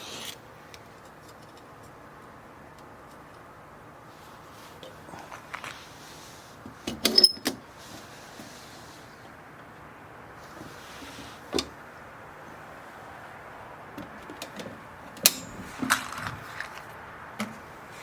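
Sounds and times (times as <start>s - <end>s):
steady low hiss: 0.0s - 18.0s
sharp clicks and knocks: 13.9s - 17.6s.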